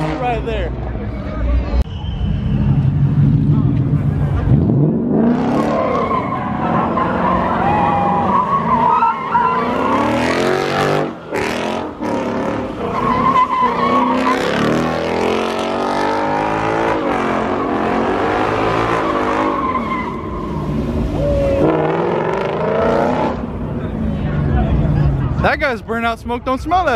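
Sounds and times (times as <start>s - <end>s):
car engine revving hard: 4.4s - 7.5s, 9.6s - 19.8s, 21.6s - 23.5s
tyres squealing on pavement: 5.5s - 11.4s, 12.6s - 15.3s, 17.3s - 22.0s.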